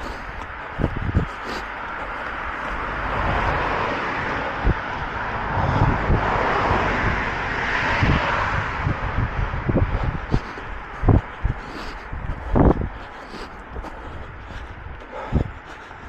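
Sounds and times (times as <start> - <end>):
engine passing close: 1.0 - 11.2.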